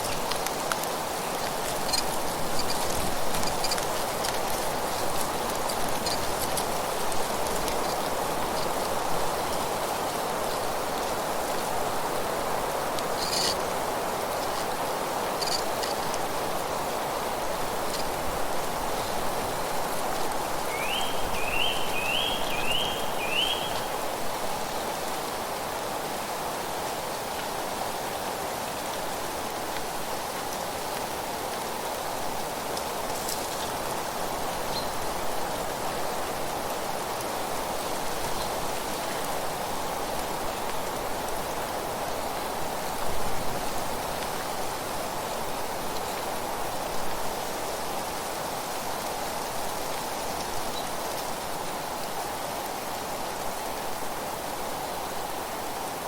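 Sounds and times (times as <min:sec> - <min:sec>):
wind rustling leaves: 0:00.0 - 0:56.0
songbird calling: 0:20.6 - 0:24.0.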